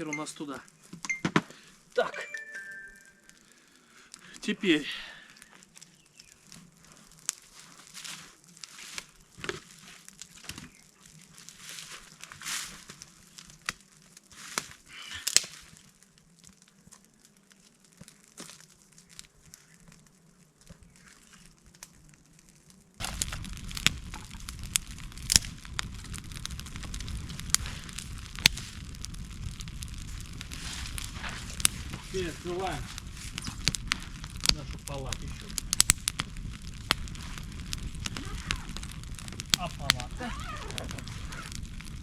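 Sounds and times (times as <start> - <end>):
fire crackling: 0.0 - 42.0
kindling rustling and snapping: 5.5 - 28.8
gas burner rushing: 23.0 - 36.2.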